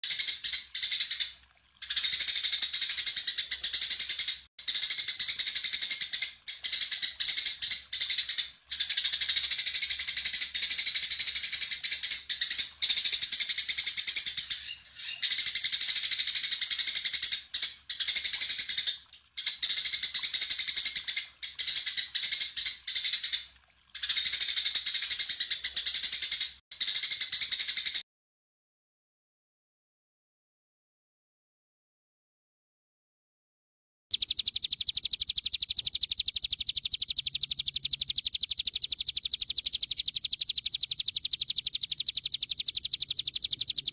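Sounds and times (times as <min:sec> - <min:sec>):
bird singing high-pitched song: 0:01.9 - 0:17.4, 0:34.1 - 0:43.9.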